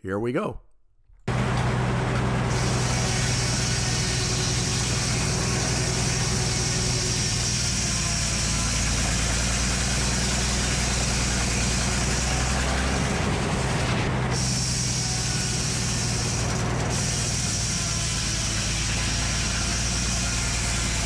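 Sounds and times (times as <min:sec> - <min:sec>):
sawmill engine running: 0:01.3 - 0:21.0.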